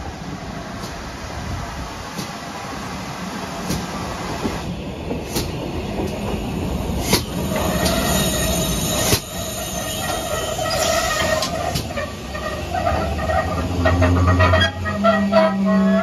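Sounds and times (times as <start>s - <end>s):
train wheels squealing on rails: 6.9s - 16.0s.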